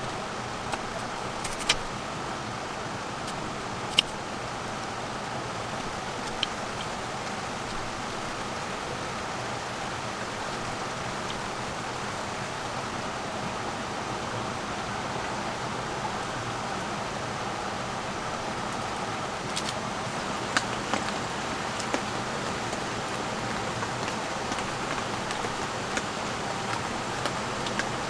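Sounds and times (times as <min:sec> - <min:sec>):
steady rain falling: 0:11.5 - 0:28.0
light ticks of drops: 0:20.1 - 0:28.0.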